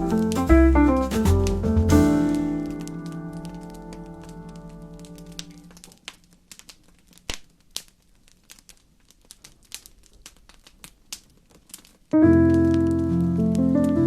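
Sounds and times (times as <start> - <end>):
piano chord: 0.0 - 5.8, 12.2 - 14.0
wood fire crackling: 0.0 - 14.0.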